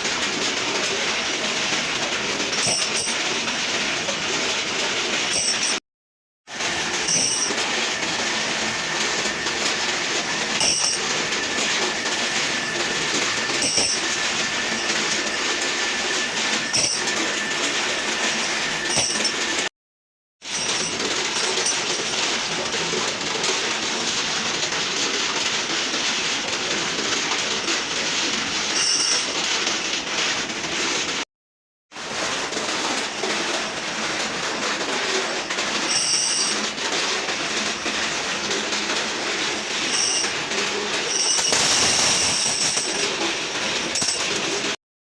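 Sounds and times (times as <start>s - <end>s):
machinery clatter: 0.0s - 5.8s, 6.5s - 19.7s, 20.5s - 31.2s, 32.0s - 44.8s.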